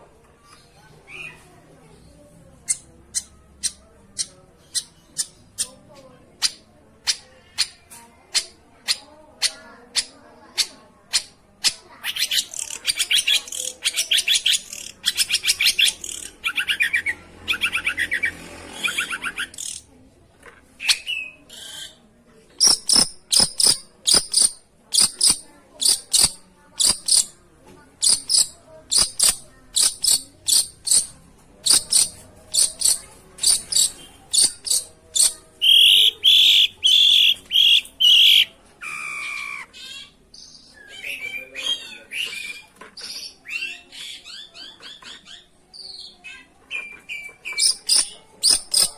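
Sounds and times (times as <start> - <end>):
bird high sharp chips: 8.4 - 19.9, 22.6 - 27.4, 28.0 - 39.6, 46.8 - 48.9.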